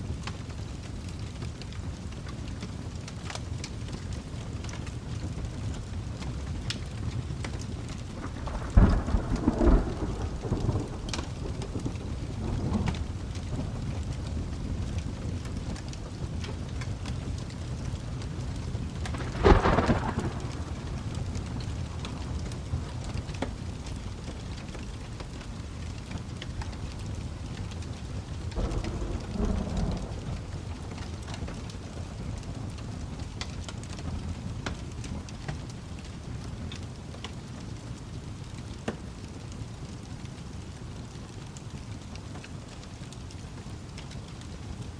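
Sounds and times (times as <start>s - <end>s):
steady rain: 0.0s - 44.9s
wood fire crackling: 0.0s - 44.9s
thunder rumbling: 5.4s - 34.7s.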